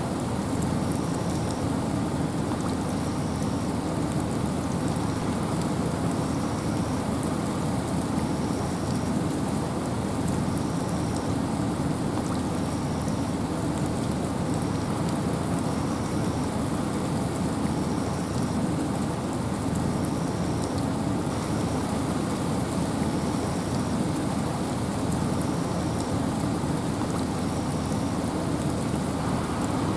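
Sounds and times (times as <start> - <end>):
rain hiss: 0.0 - 29.9
wind rumble: 28.8 - 29.9.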